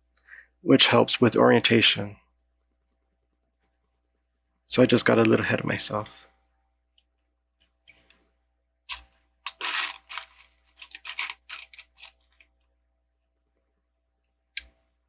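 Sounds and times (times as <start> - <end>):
plastic toy bricks clattering: 8.9 - 12.5.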